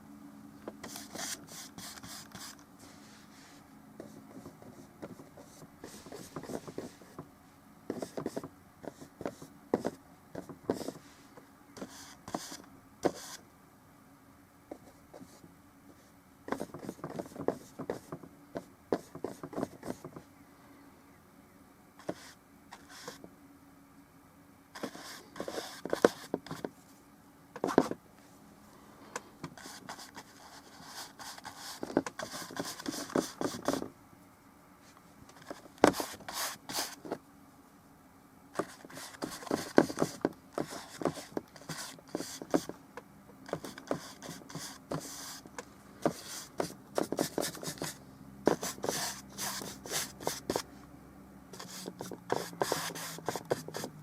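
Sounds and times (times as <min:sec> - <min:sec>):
paintbrush scratchy strokes: 0:46.1 - 0:50.7, 0:51.6 - 0:53.9.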